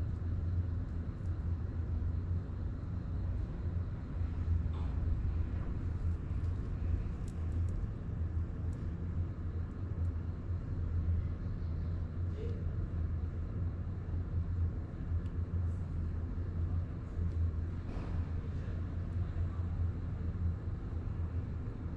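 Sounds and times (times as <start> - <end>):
wind and road noise: 0.0 - 11.3.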